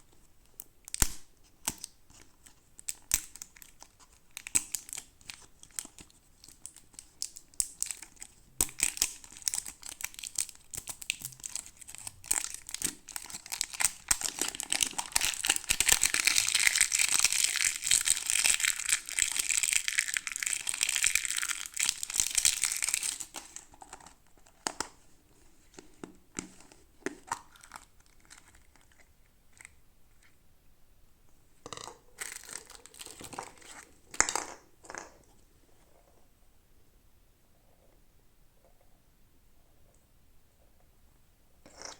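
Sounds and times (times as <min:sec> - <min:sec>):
plastic packaging crinkling and tearing: 0:00.9 - 0:24.9, 0:32.2 - 0:34.2.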